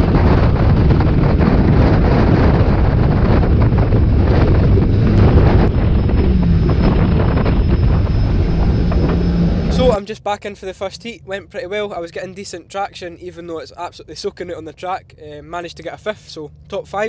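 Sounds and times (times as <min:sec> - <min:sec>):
wind noise: 0:00.0 - 0:10.0
car engine running: 0:00.0 - 0:13.4
road rumble: 0:00.0 - 0:17.0.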